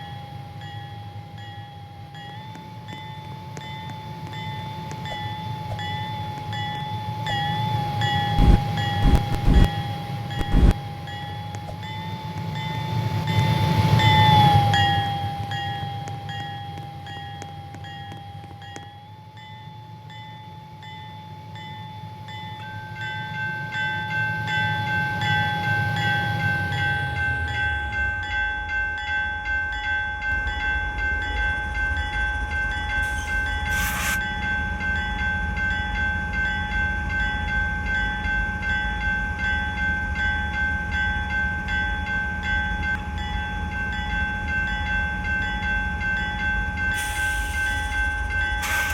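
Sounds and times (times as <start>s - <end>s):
high whining tone: 5.0s - 11.9s, 32.9s - 34.3s
freight train rumbling: 23.5s - 48.9s.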